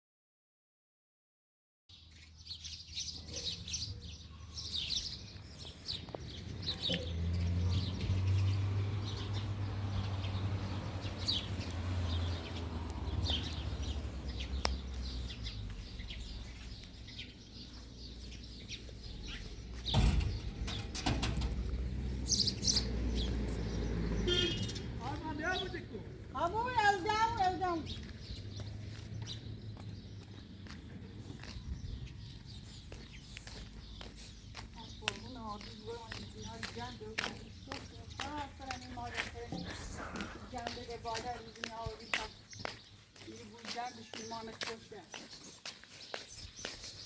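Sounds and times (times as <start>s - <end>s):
small birds chirping: 1.9s - 47.0s
brief thud: 19.8s - 21.7s.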